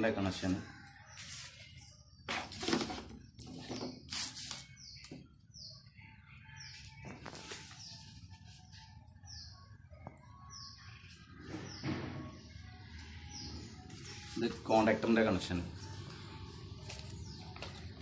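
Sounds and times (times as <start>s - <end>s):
bird chirping: 3.5s - 14.3s.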